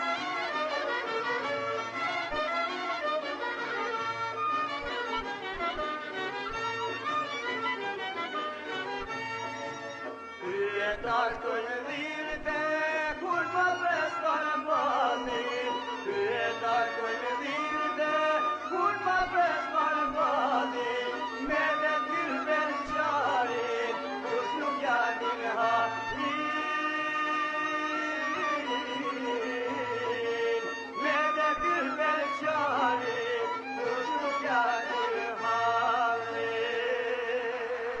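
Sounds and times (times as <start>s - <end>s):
instrumental accompaniment: 0.0s - 38.0s
violin-like folk melody: 0.0s - 38.0s
person singing ornamented lines: 10.3s - 38.0s.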